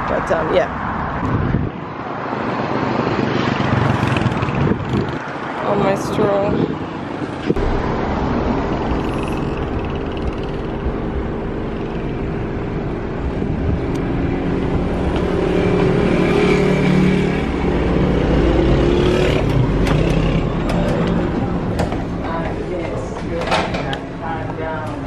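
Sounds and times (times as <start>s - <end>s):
vehicle engine running: 7.6s - 23.2s.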